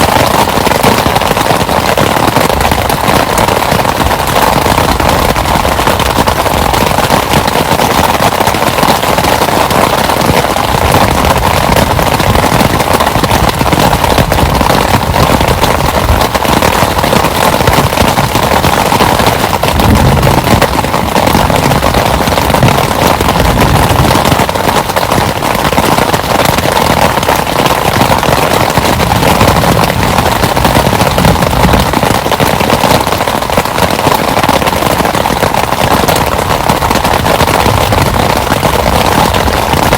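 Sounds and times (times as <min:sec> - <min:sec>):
heavy rain on a shelter: 0:00.0 - 0:39.9.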